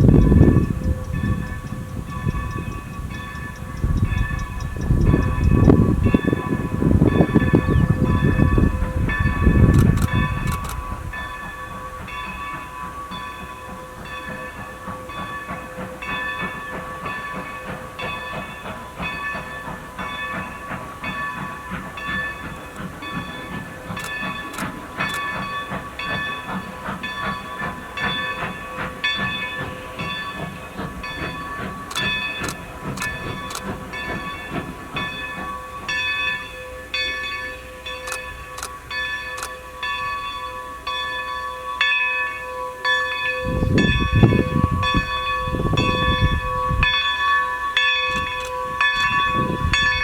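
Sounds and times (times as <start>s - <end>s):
locomotive bell ringing: 0.0s - 50.0s
steam engine hiss and rumble: 0.0s - 50.0s
sharp clicks: 9.6s - 10.9s, 23.9s - 25.4s, 31.8s - 34.2s, 48.1s - 49.2s.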